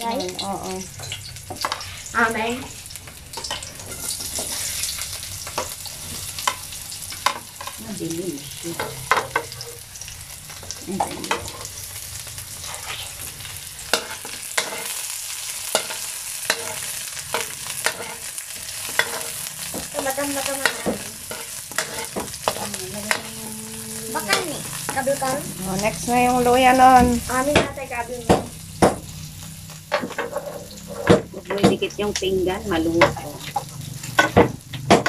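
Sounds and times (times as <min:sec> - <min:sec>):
onion and garlic sizzling in oil: 0:00.0 - 0:35.0
metal ladle scraping a wok: 0:03.3 - 0:06.6, 0:12.6 - 0:15.0, 0:29.9 - 0:31.1.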